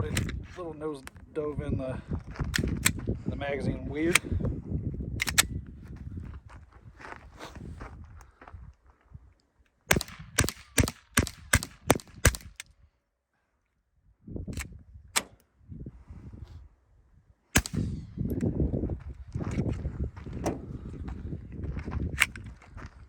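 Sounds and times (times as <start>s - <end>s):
suppressed pistol shots: 5.2s - 5.5s, 9.9s - 12.6s, 17.6s - 18.1s.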